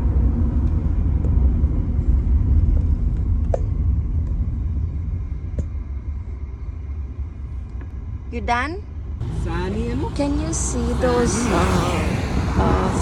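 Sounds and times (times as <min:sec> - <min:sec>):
car driving rumble: 0:09.1 - 0:13.0.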